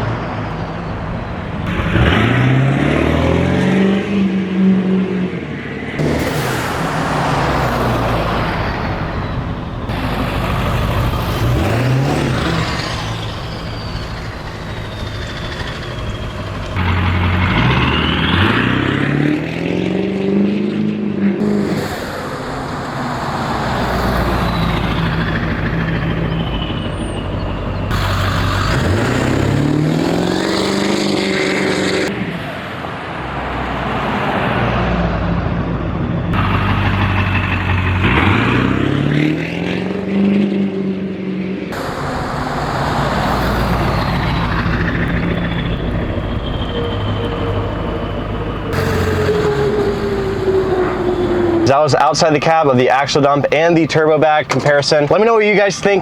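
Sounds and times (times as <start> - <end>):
diesel engine revving: 0.0 - 56.0
turbo whistle: 11.7 - 16.8, 43.8 - 51.6.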